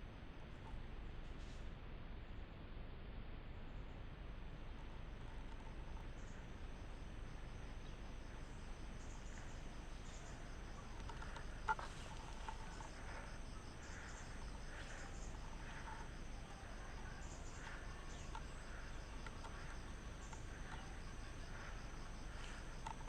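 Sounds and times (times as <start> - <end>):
insects chirping: 4.6 - 23.0.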